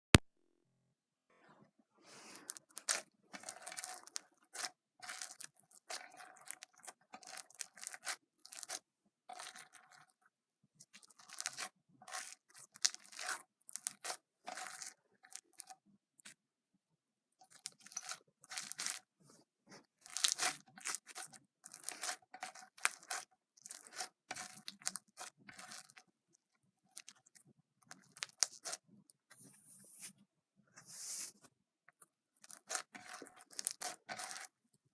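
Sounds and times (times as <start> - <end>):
slime squished by hands: 2.4 - 10.1, 17.5 - 19.0, 20.0 - 26.0, 32.4 - 34.5.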